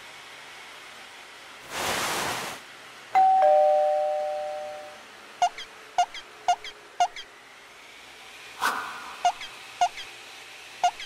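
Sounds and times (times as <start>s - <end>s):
falling two-note chime: 3.2s - 5.0s
squeaky blips: 4.5s - 7.3s, 9.1s - 10.1s
short whoosh: 8.6s - 9.3s.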